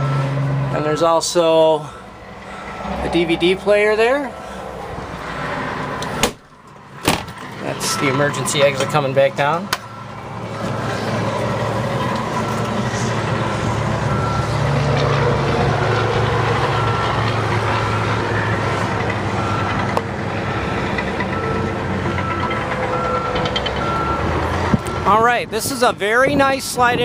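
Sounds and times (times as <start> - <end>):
reversing alarm beeping: 0.0 - 1.0, 7.6 - 27.0
truck engine rumbling: 0.0 - 27.0.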